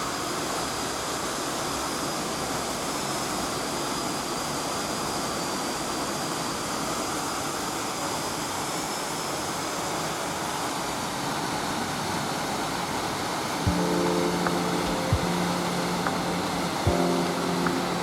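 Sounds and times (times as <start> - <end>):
rain: 13.7 - 18.0.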